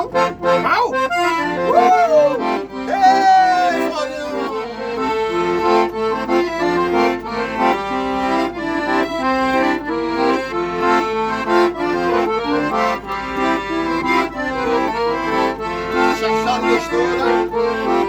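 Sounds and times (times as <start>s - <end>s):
accordion playing lively melody: 0.0s - 18.0s.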